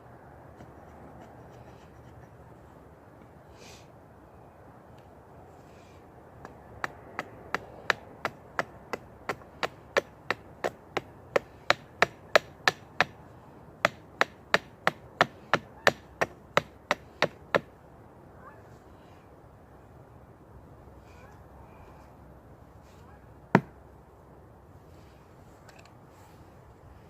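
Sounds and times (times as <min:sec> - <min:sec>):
chopping strikes into wood: 0:06.4 - 0:13.2, 0:13.8 - 0:17.7, 0:23.5 - 0:23.7.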